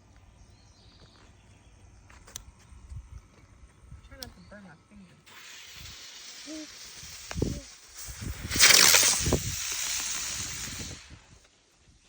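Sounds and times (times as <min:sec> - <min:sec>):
firework fuse hissing: 0:05.2 - 0:12.0
firework whoosh: 0:05.3 - 0:11.4.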